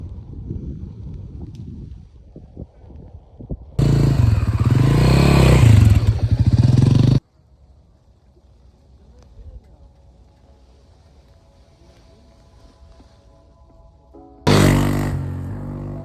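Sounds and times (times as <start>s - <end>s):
motorcycle engine revving: 3.8s - 7.2s, 14.5s - 16.0s.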